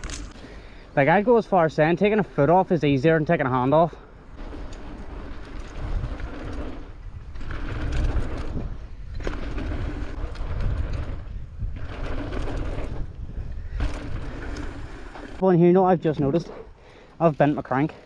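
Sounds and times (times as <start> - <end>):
bike tyres rolling on dirt trail: 0.0 - 18.0
wind rumbling on microphone: 4.1 - 15.4.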